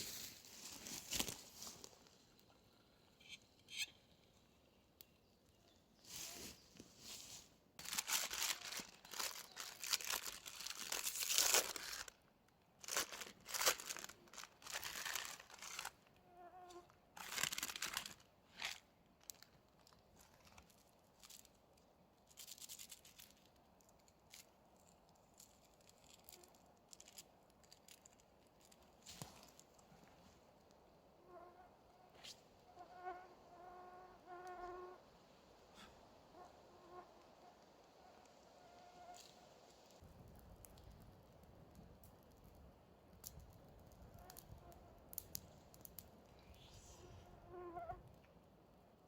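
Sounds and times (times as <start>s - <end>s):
bags rustling and crinkling: 0.0s - 2.2s, 6.0s - 12.2s, 12.8s - 16.0s, 17.2s - 21.5s, 24.3s - 30.4s.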